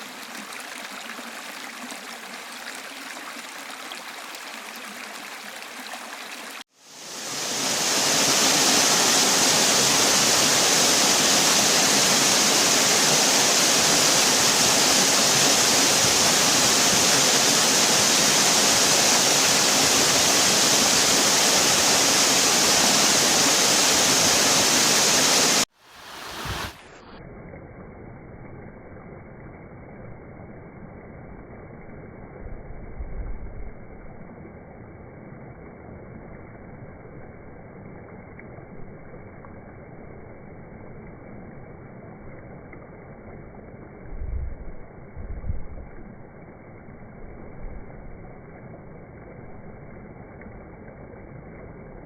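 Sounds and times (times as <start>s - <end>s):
waterfall rushing: 0.0s - 27.0s
flowing water: 0.0s - 30.2s, 32.0s - 52.0s.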